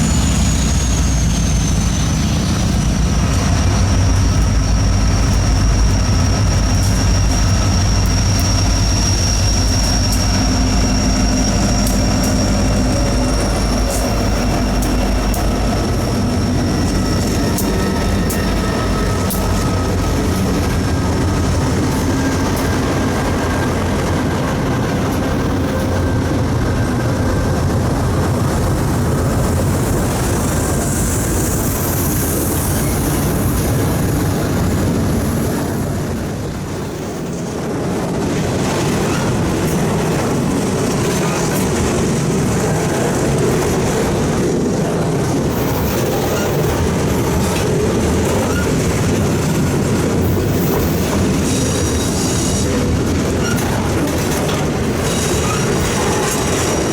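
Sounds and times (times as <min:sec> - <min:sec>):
faint high wheel squeal: 0:00.0 - 0:20.8, 0:29.8 - 0:35.9, 0:45.5 - 0:49.2, 0:50.2 - 0:56.9
freight train rumbling past: 0:00.0 - 0:56.9
wheels clicking over rail joints: 0:02.0 - 0:30.3, 0:37.2 - 0:56.9.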